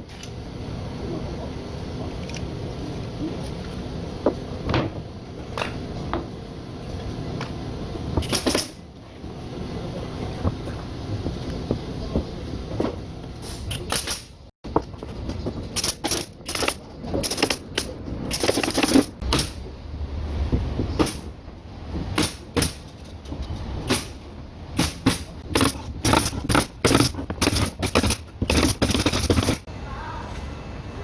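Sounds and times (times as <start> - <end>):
knocks and clatter of wood and tools: 24.8 - 29.7.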